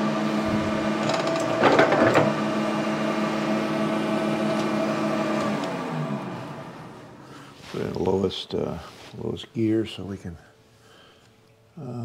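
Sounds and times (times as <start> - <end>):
metal lathe motor hum: 0.0 - 7.2.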